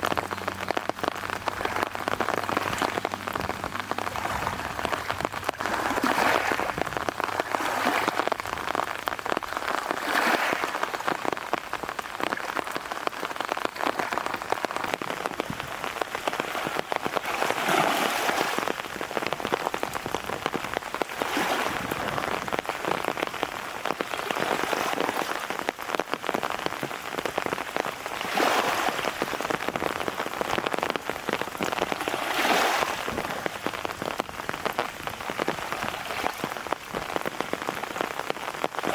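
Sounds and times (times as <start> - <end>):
gusts of wind-driven rain: 0.0 - 38.9
heavy rain falling: 0.0 - 38.9.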